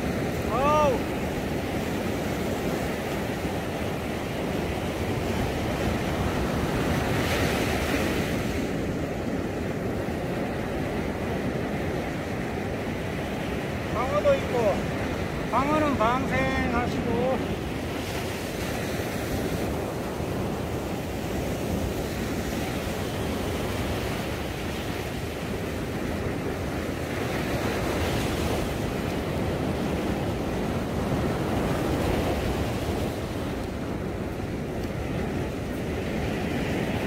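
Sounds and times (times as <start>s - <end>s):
surf washing onto beach: 0.0s - 37.0s
wind buffeting microphone: 0.0s - 37.0s.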